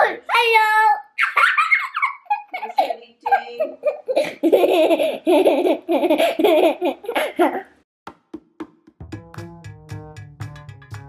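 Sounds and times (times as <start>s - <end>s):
young child laughing: 1.2s - 7.8s.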